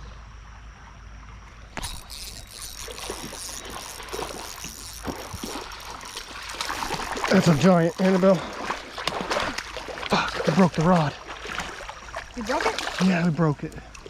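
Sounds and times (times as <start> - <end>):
creek water running and splashing: 1.7 - 14.0.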